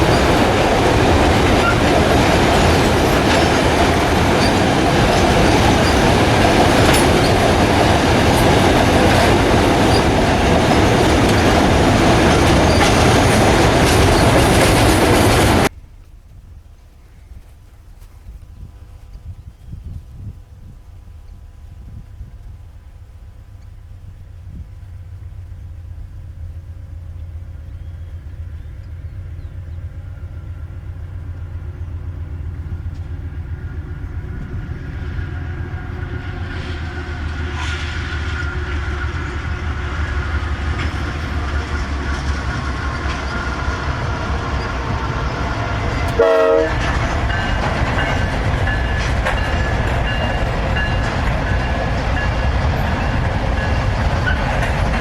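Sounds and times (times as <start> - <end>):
freight train rumble: 0.0 - 55.0
train horn blast: 34.4 - 41.8, 42.8 - 50.3.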